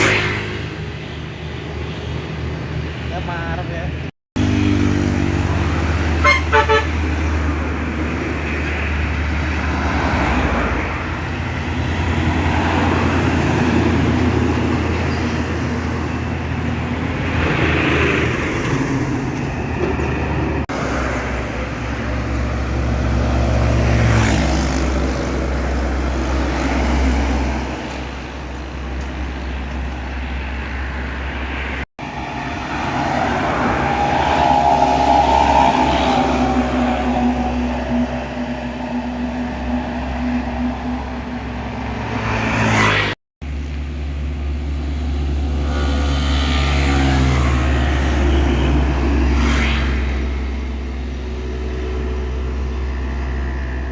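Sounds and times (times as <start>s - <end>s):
traffic noise: 0.0s - 53.9s
trucks passing: 0.0s - 53.9s
horn toots: 6.2s - 7.0s.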